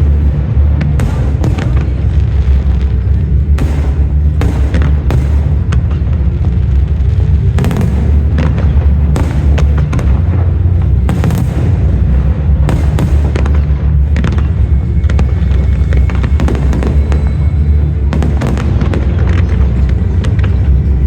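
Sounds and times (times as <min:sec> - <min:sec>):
fireworks sharp bangs: 0:00.0 - 0:21.0
low booming rumble: 0:00.0 - 0:21.0.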